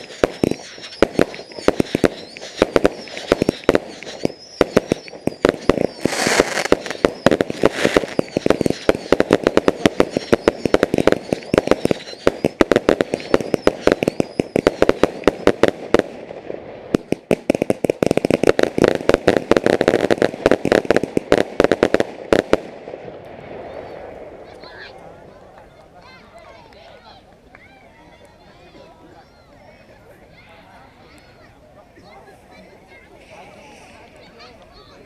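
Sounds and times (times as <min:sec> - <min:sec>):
fireworks cracking bangs: 0:00.0 - 0:26.6.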